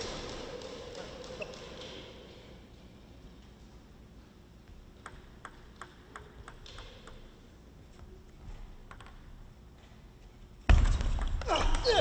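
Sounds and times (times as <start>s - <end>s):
faint hall hum: 0.0s - 12.0s
table tennis ball clicking: 0.1s - 2.1s, 5.0s - 7.4s, 8.9s - 9.3s.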